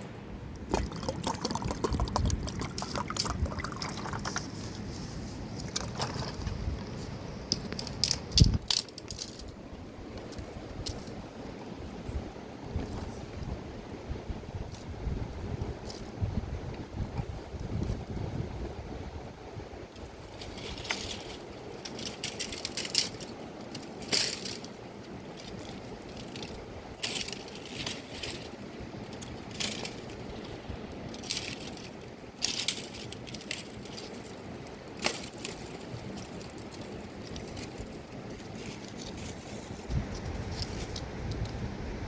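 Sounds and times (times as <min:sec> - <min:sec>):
crunching and crackling: 0:20.0 - 0:41.6.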